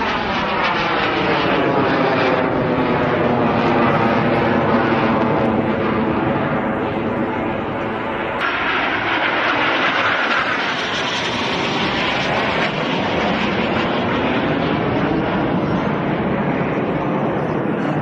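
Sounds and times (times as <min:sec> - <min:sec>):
aircraft flying past: 0:00.0 - 0:18.0.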